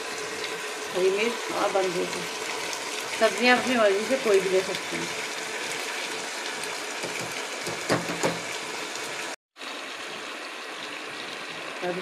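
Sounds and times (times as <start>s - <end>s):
food sizzling in a pot: 0.0s - 12.0s
spatula knocking against pot: 7.0s - 8.5s.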